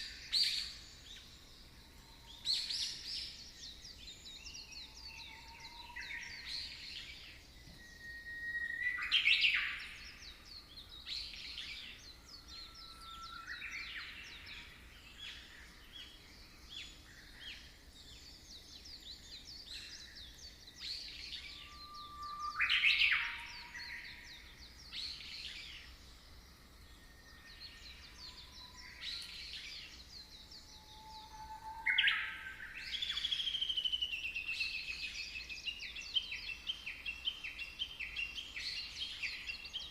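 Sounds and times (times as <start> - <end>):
faint steady hiss: 0.0 - 39.9
birds chirping and whistling: 2.2 - 17.6, 18.2 - 26.0, 27.0 - 39.9
long falling bird whistle: 4.8 - 10.0, 21.2 - 24.3, 30.5 - 34.1.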